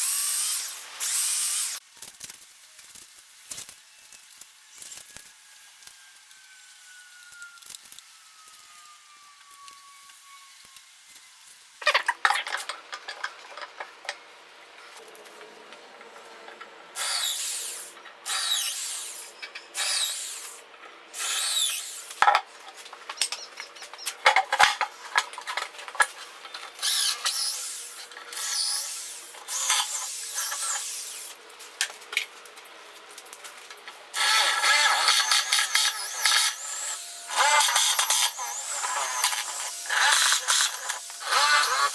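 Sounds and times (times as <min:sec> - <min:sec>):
tool working wood: 0:34.2 - 0:41.9.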